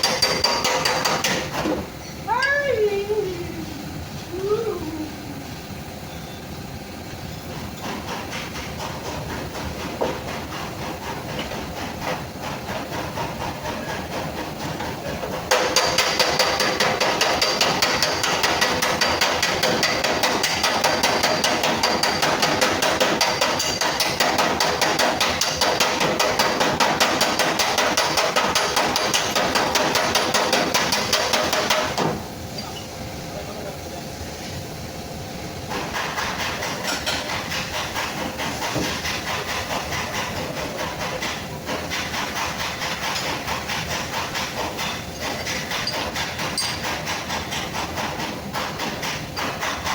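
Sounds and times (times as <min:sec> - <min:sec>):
hammer tapping on sheet metal: 0:00.0 - 0:01.8, 0:07.8 - 0:32.2.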